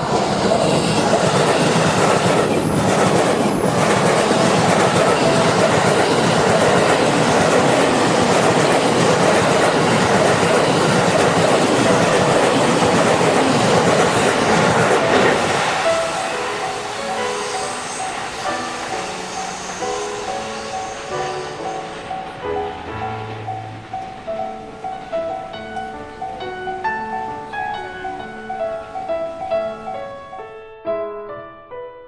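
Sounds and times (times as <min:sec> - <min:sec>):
train wheels clattering on rails: 0:00.0 - 0:27.9
crossing warning bell ringing: 0:01.7 - 0:14.8, 0:16.0 - 0:26.8.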